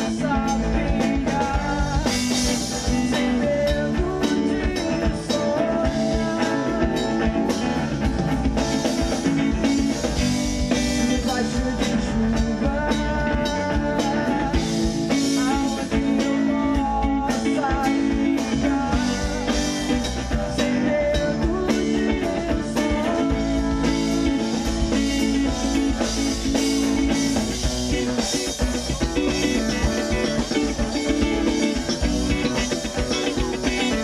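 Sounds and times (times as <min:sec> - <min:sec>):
live band playing pop-rock: 0:00.0 - 0:34.0
wavering melodic lead line: 0:00.0 - 0:34.0.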